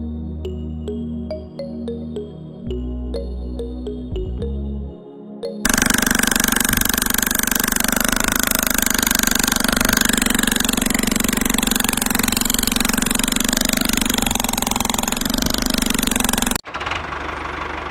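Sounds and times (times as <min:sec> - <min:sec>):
fast rattling flutter: 0:05.7 - 0:16.6
small electric motor humming: 0:05.7 - 0:16.6.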